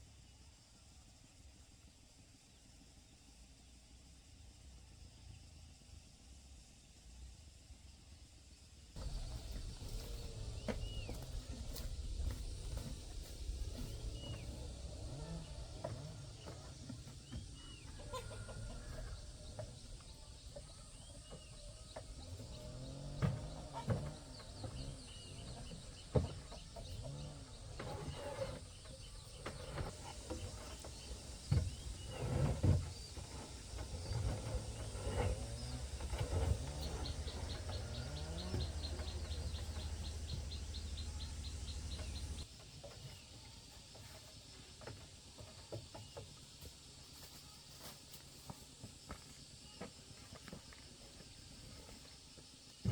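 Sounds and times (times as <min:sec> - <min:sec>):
farmyard birds clucking: 0:09.0 - 0:48.2.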